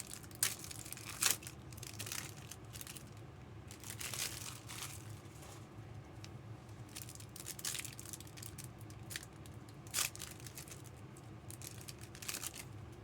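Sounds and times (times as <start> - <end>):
wrappers rustling and crinkling: 0.0 - 5.7, 6.9 - 12.7
wrapper ripping: 0.1 - 3.0, 3.7 - 5.1, 11.5 - 12.6.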